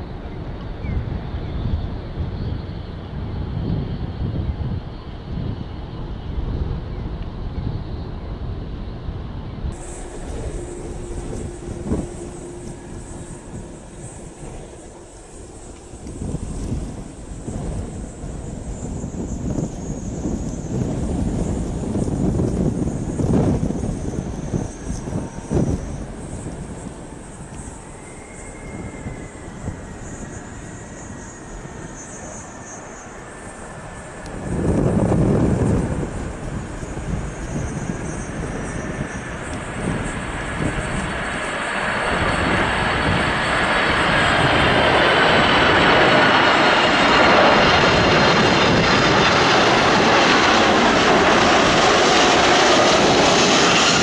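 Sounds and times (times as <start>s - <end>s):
wind buffeting microphone: 9.7s - 54.0s
jet engines whining: 9.8s - 54.0s.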